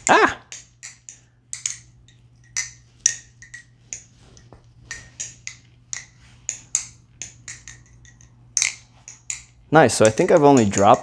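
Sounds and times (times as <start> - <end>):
balisong knife metallic clacks: 0.0 - 11.0.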